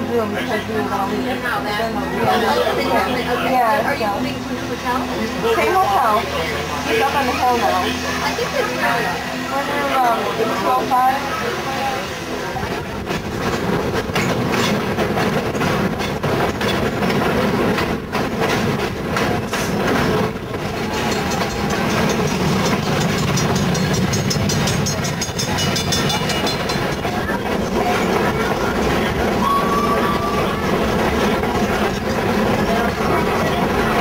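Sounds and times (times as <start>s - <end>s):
train cars rumbling: 0.0s - 34.0s
wheels clicking over rails: 12.6s - 34.0s.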